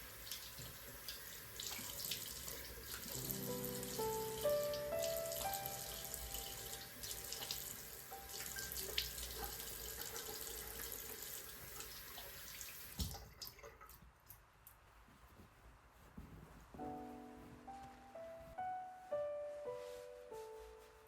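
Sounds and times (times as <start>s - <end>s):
tap water running into sink: 0.0s - 14.0s.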